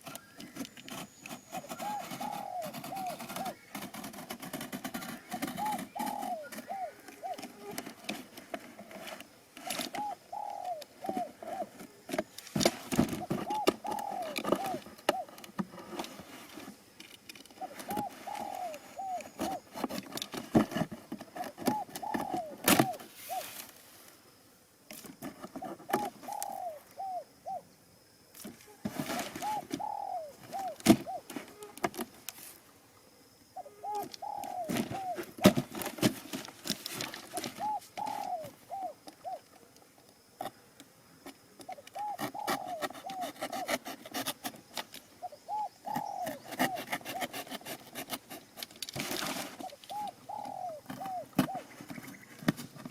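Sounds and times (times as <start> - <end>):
knocks and rustles: 0.0 - 10.0, 11.0 - 18.4, 19.2 - 23.7, 34.5 - 38.1, 50.8 - 52.9
pigeons cooing: 0.0 - 12.3, 12.9 - 16.1, 17.5 - 23.6, 25.4 - 27.7, 28.7 - 32.1, 33.6 - 39.6, 41.6 - 48.2, 49.2 - 52.9.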